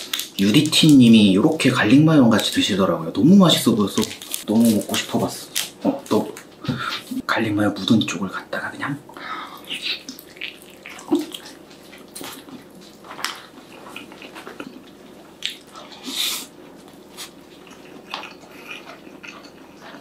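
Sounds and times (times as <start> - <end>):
wet chewing and mouth clicks: 9.1 - 20.0.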